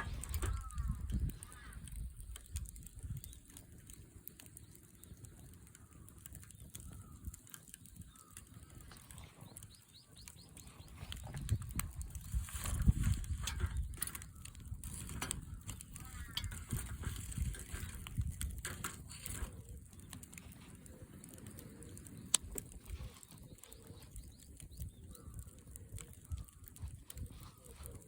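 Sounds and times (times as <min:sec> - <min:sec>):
wind on microphone: 0:00.0 - 0:03.7, 0:10.2 - 0:28.0
firewood crackling and popping: 0:00.0 - 0:28.0
bird chirping: 0:08.0 - 0:11.7.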